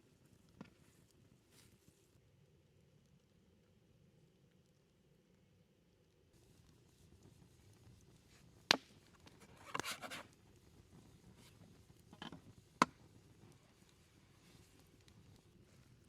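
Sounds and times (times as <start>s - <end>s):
scraping rustle: 9.4s - 10.4s.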